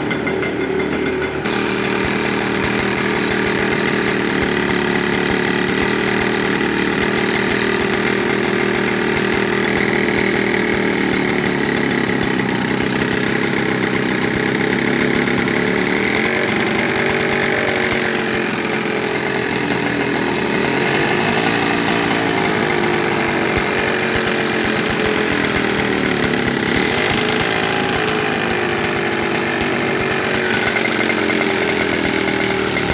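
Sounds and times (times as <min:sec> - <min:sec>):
two-stroke moped engine buzzing: 0:00.0 - 0:32.9.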